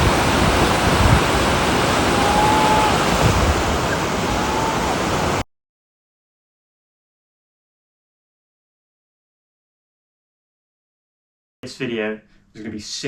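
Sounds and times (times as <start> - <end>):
river rushing through rapids: 0.0 - 5.4
wind buffeting microphone: 0.0 - 5.4.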